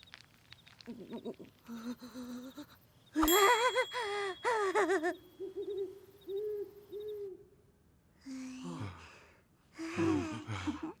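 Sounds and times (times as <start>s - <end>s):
thin high ringing tone: 3.2s - 5.7s.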